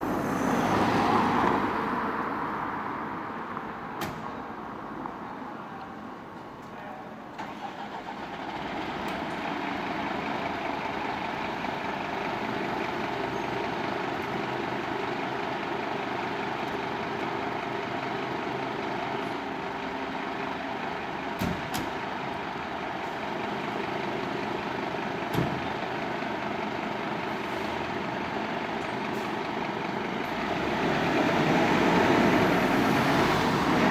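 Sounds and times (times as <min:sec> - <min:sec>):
diesel engine idling: 0:07.5 - 0:33.9.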